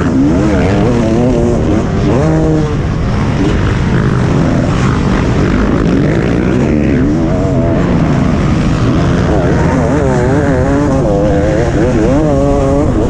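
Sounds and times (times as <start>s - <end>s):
motocross bike engine revving: 0.0s - 13.0s.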